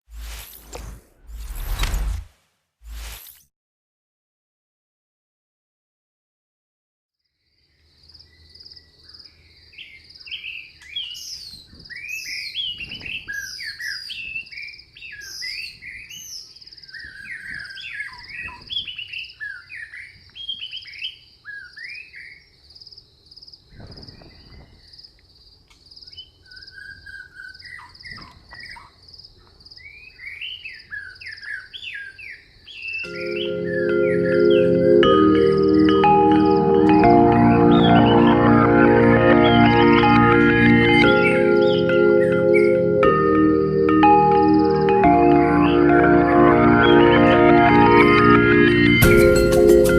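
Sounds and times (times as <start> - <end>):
birds chirping and singing: 9.1 - 22.5, 26.1 - 29.0, 29.8 - 39.8, 40.6 - 43.0.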